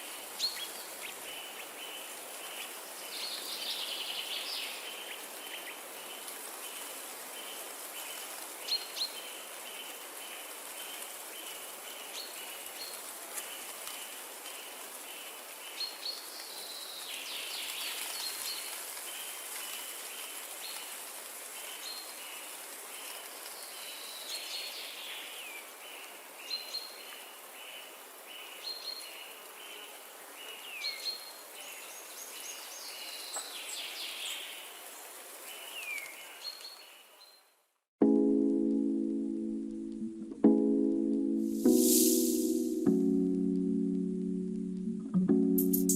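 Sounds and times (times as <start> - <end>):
wind rushing through trees: 0.0 - 37.0, 41.4 - 44.8
repeating chirp: 45.6 - 45.9.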